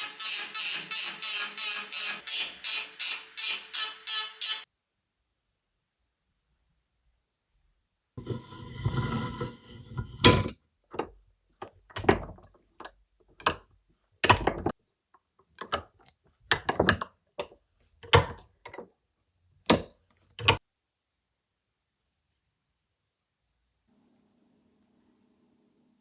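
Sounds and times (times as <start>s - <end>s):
knocks and clunks: 14.2s - 14.8s.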